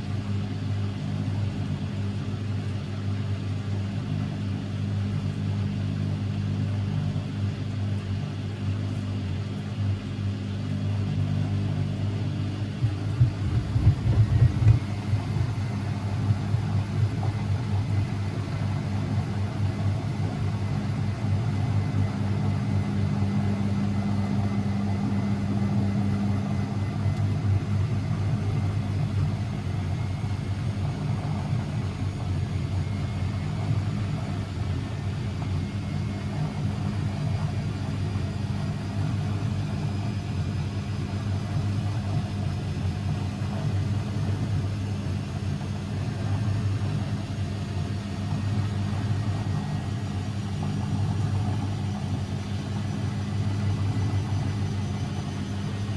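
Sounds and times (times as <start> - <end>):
washing machine running: 0.0 - 55.9.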